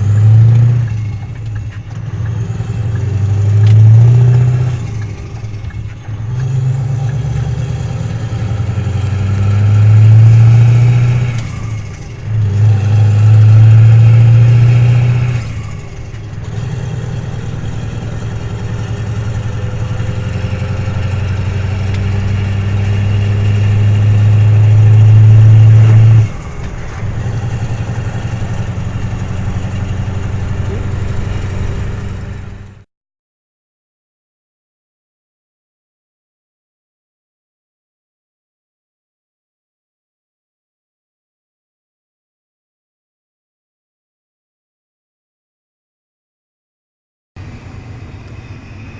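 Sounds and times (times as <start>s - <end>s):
diesel truck engine under load: 0.0s - 32.9s, 47.4s - 48.9s.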